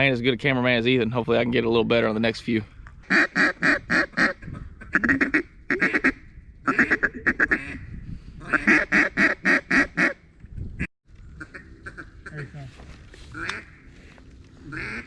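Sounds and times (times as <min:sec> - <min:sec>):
duck call quacks: 0:03.1 - 0:07.8, 0:08.4 - 0:10.2, 0:13.3 - 0:13.9, 0:14.7 - 0:15.0.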